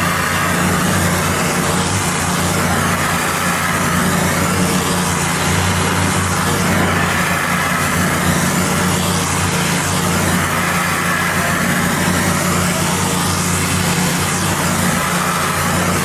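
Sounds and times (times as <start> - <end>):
pressure washer motor hum: 0.0 - 16.0
water spraying concrete: 0.0 - 16.0.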